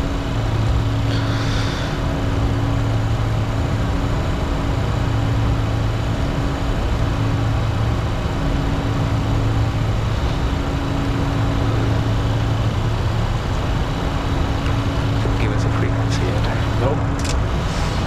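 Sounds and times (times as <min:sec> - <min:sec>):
higher hum: 0:00.0 - 0:18.0
jet engines droning: 0:00.0 - 0:18.0
low hum: 0:00.0 - 0:18.0
rush of airflow: 0:01.1 - 0:03.0, 0:17.4 - 0:18.0.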